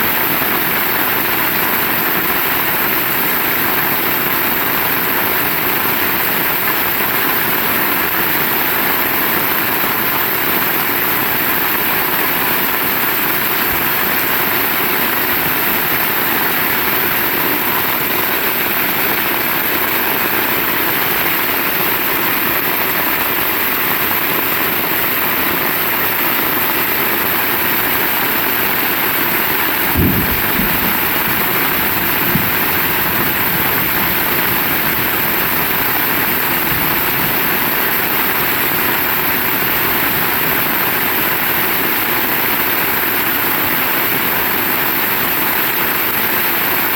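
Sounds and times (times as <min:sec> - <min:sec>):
heavy rain falling: 0:00.0 - 0:46.9
low thumps: 0:29.6 - 0:37.6.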